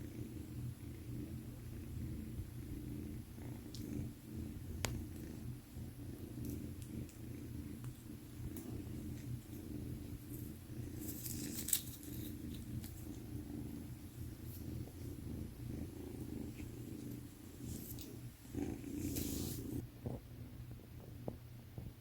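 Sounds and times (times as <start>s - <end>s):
kitten purring: 0.0s - 22.0s
rustling: 6.1s - 19.8s.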